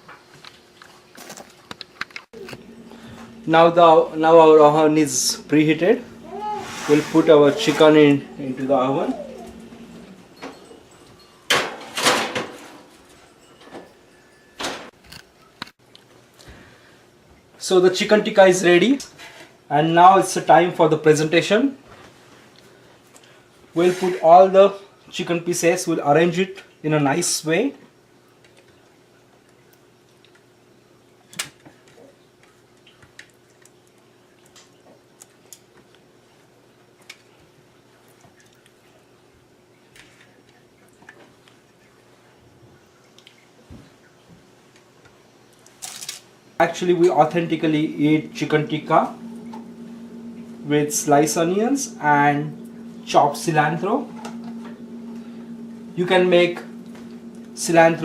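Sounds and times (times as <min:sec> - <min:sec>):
faint steady hum: 0:00.0 - 0:58.0
baking tray scraping slide: 0:06.5 - 0:08.2, 0:23.8 - 0:24.3.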